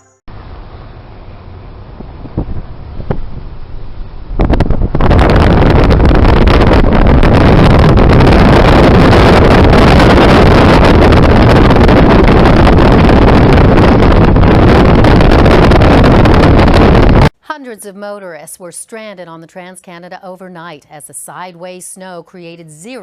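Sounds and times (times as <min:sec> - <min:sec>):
wind buffeting microphone: 0:00.4 - 0:17.3.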